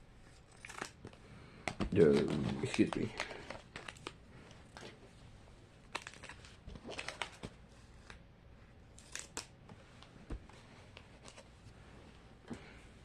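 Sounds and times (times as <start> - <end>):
plastic package crinkling and tearing: 0.5 - 1.2, 1.9 - 4.2, 5.8 - 7.4, 9.0 - 9.6.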